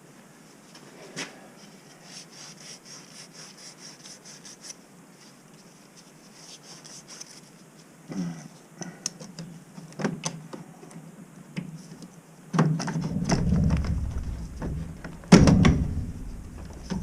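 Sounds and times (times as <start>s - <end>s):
loud knock: 13.3s - 17.0s
low rumbling scrape: 13.3s - 17.0s.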